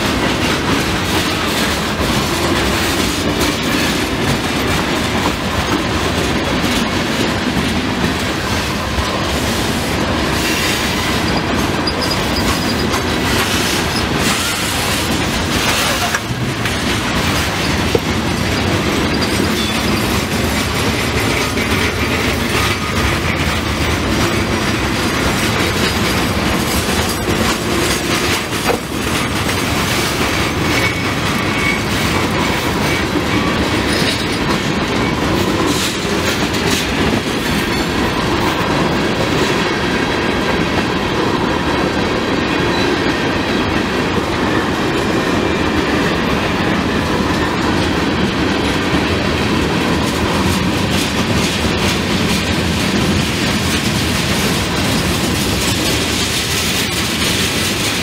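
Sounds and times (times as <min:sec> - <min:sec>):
wheels clicking over rail joints: 0:00.0 - 0:41.0
train cars rolling past: 0:00.0 - 0:58.0
faint wheel squeal: 0:11.3 - 0:13.0.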